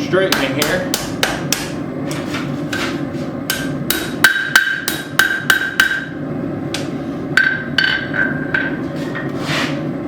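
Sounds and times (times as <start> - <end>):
hammer striking steel on anvil: 0.2 - 1.8, 3.5 - 6.2, 6.8 - 8.8.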